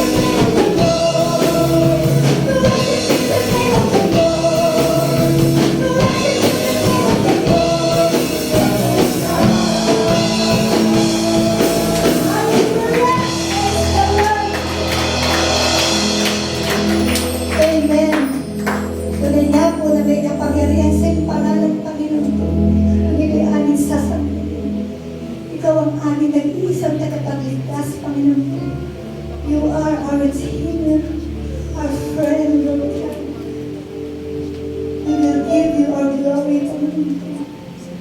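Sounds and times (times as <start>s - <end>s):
voices singing: 0.0s - 24.5s
band playing: 0.0s - 26.2s.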